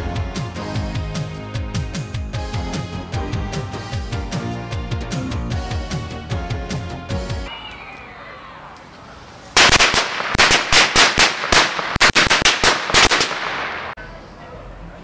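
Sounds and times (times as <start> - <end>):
firecrackers banging: 9.2 - 14.0.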